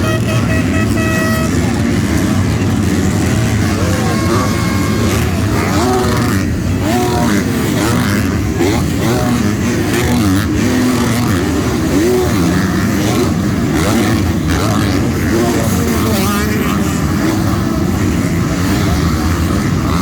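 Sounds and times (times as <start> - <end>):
motocross bikes revving: 0.0 - 20.0.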